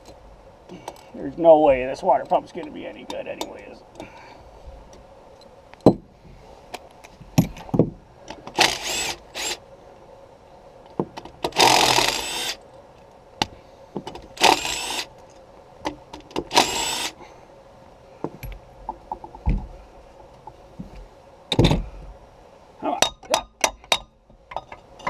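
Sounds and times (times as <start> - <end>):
power tool bursts: 8.6 - 9.6, 11.5 - 12.6, 14.4 - 15.1, 16.5 - 17.2
light metallic clicks and knocks: 23.0 - 25.0.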